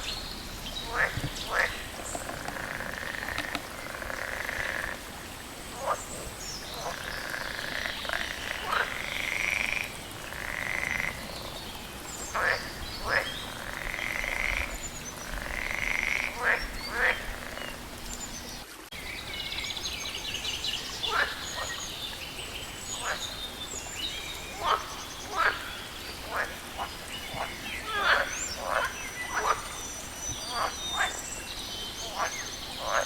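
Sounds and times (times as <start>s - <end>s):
frogs croaking: 0.0s - 33.0s
higher frog chorus: 0.8s - 11.6s, 12.3s - 18.6s, 21.1s - 21.8s, 23.0s - 23.3s, 24.5s - 29.8s, 32.0s - 33.0s.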